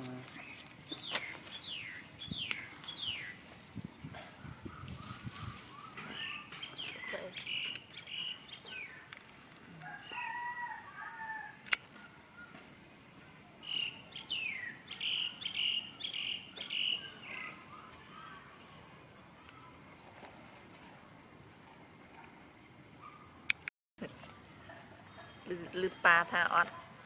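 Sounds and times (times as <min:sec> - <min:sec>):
birds chirping: 0:00.0 - 0:09.2, 0:13.4 - 0:20.1, 0:22.0 - 0:27.0.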